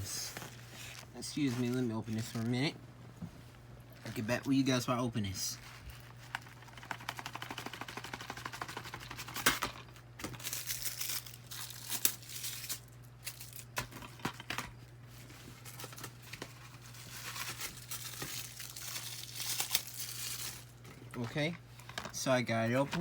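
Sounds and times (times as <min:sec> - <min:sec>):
plastic wrapping torn and crinkled: 0:10.2 - 0:14.0, 0:15.6 - 0:21.0.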